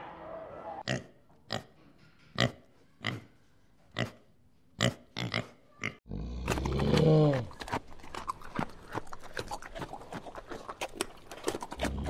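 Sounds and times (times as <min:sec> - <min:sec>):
pig grunting: 0:04.8 - 0:10.7, 0:11.5 - 0:12.0.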